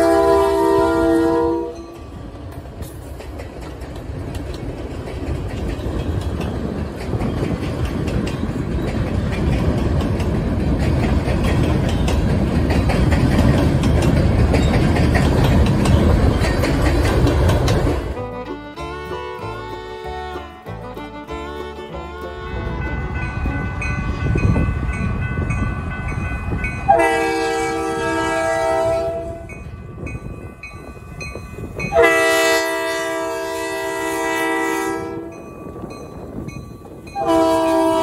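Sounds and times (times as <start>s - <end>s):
locomotive air horn: 0.0s - 2.0s, 18.1s - 24.9s, 26.9s - 29.6s, 31.9s - 35.4s, 37.2s - 38.0s
train wheels rumbling on bridge: 0.0s - 38.0s.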